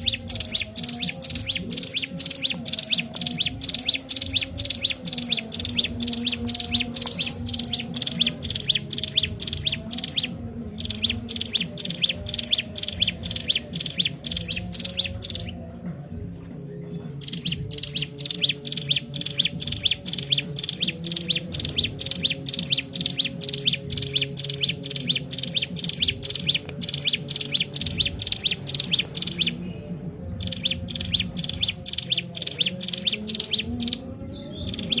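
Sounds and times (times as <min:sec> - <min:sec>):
bird singing rapid chirps: 0:00.0 - 0:35.0.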